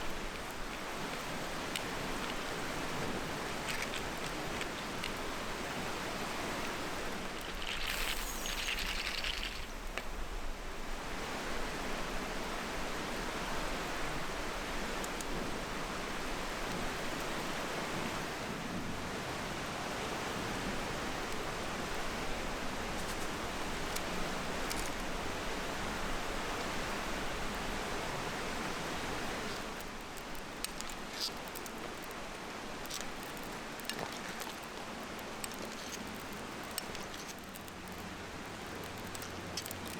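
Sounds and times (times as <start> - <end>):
fire crackles: 0.0 - 10.9, 28.4 - 39.9
fish sizzling in frying pan: 4.8 - 10.2.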